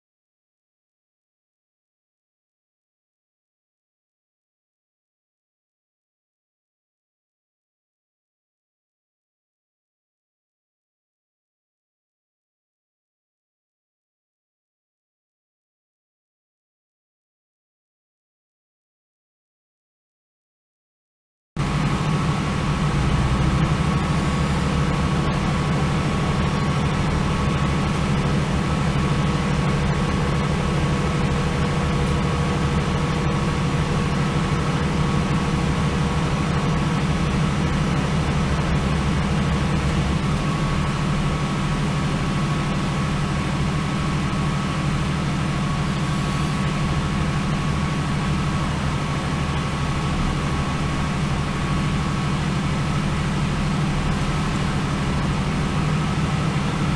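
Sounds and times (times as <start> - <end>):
diesel train engine drone: 21.6 - 56.9.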